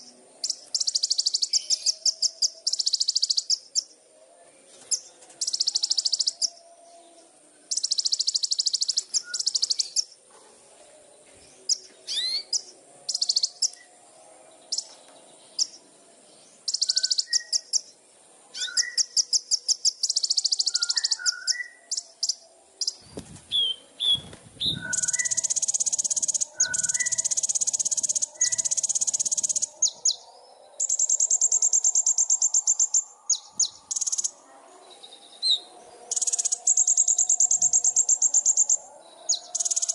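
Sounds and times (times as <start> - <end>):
songbird trilling: 7.7 - 10.2, 16.6 - 17.9, 18.6 - 34.4, 35.0 - 39.9.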